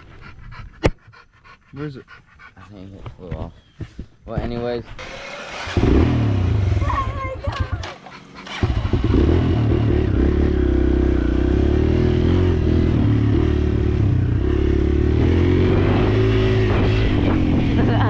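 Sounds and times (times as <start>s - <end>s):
dirt bike engine revving: 5.0s - 18.0s.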